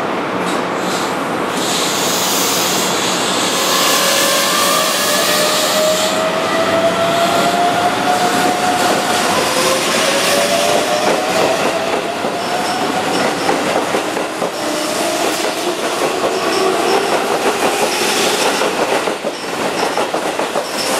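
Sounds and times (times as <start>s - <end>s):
train cars rumbling: 0.2s - 20.9s
hiss: 0.8s - 6.2s.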